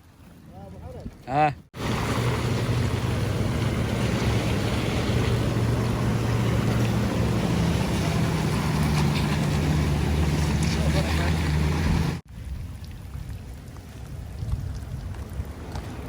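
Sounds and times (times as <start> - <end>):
rain rushing: 1.8 - 12.2
wind noise on microphone: 11.6 - 16.0.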